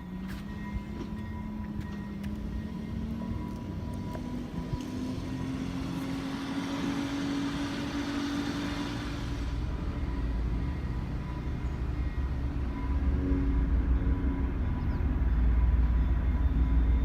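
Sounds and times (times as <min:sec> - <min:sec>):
locomotive engine humming: 0:00.0 - 0:17.0.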